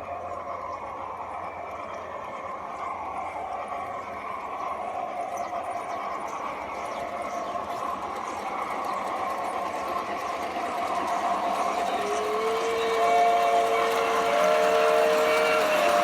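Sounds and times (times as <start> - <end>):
model steam locomotives running: 0.0 - 16.0
multi-tone steam whistle: 10.9 - 16.0.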